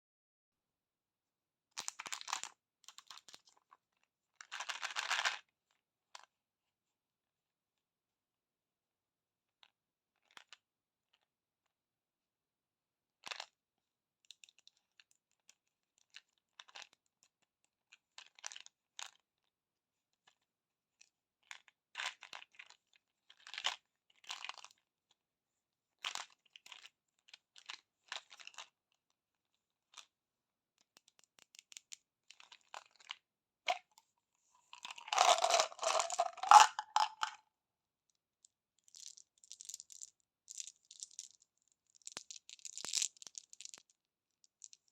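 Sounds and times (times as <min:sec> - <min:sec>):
candy wrappers crinkling and tearing: 0:34.8 - 0:37.4, 0:38.8 - 0:43.9.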